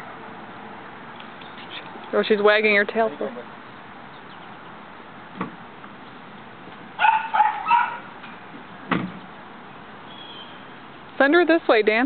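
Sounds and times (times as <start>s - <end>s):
puppy yipping: 7.0s - 8.1s.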